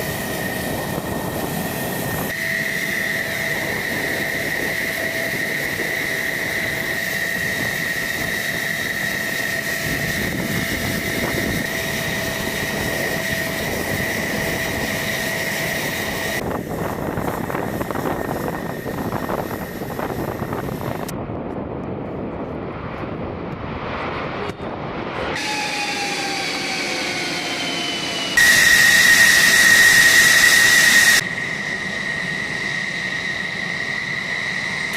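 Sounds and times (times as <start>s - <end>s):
aircraft engines whining: 0.0s - 34.9s.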